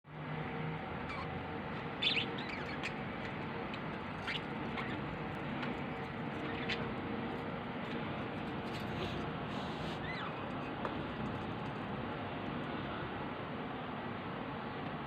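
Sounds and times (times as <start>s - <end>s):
small bird chirping: 1.0s - 7.5s, 8.4s - 11.5s.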